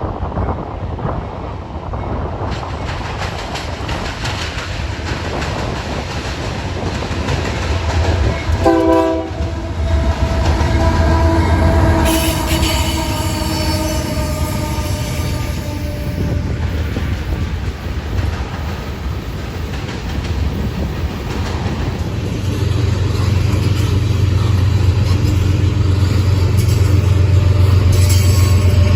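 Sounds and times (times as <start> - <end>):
train cars rumbling and clicking: 0.0 - 28.9
locomotive horn blast: 8.1 - 16.8.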